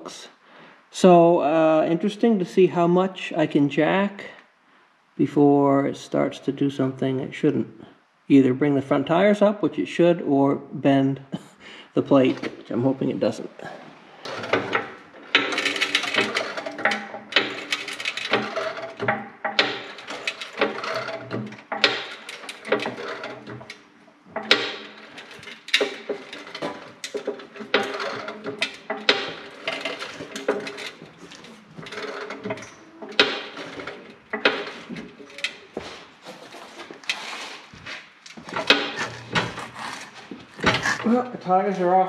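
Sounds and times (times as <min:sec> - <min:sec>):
hand jack clicking and knocking: 0:14.2 - 0:35.8, 0:38.4 - 0:41.1.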